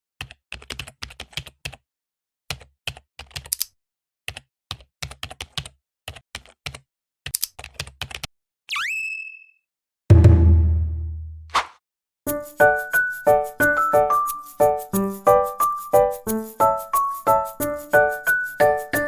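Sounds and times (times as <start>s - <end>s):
computer keyboard typing: 0.2s - 1.8s, 2.5s - 8.3s.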